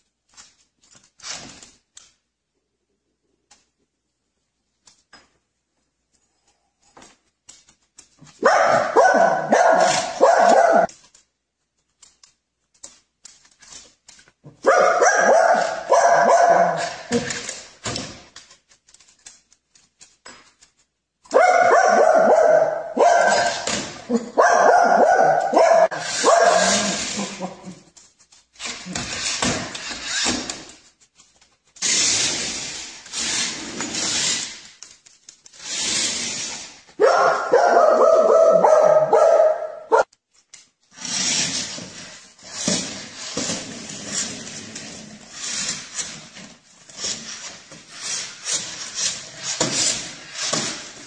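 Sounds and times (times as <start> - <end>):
dog barking: 8.4 - 10.9, 14.6 - 17.2, 21.3 - 27.0, 37.0 - 40.1
dog whining: 8.7 - 10.9.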